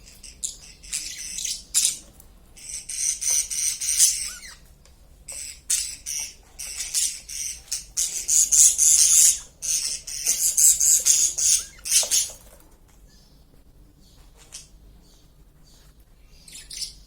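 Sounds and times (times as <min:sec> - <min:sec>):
parrots squawking and chattering: 0:00.0 - 0:04.7, 0:05.3 - 0:12.5, 0:16.4 - 0:17.0.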